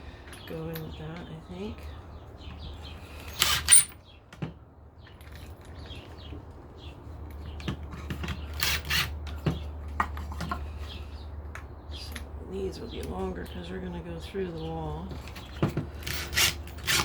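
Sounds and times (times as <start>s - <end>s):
birds chirping faintly: 0.0s - 8.6s, 9.2s - 16.1s
metal screws rattling: 3.2s - 4.0s, 15.4s - 17.0s.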